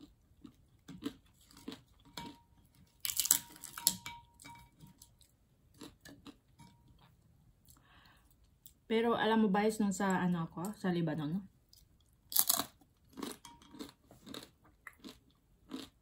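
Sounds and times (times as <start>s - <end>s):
chewing crispy fried meat: 0.0s - 3.8s, 5.1s - 6.5s, 11.7s - 16.0s
food crackling as pulled apart: 3.0s - 3.9s.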